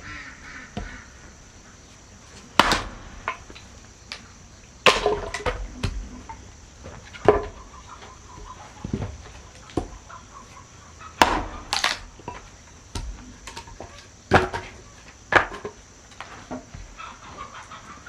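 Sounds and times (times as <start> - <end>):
tool striking wood: 2.6 - 3.7, 11.2 - 13.7.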